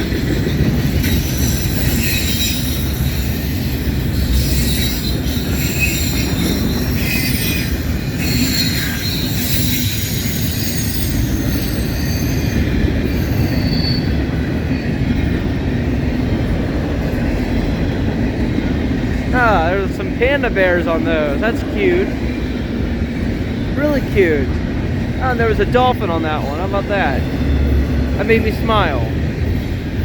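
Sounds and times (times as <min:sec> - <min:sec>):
steel wheels rumbling on rail: 0:00.0 - 0:30.0
high-pitched wheel squeal: 0:01.0 - 0:14.2.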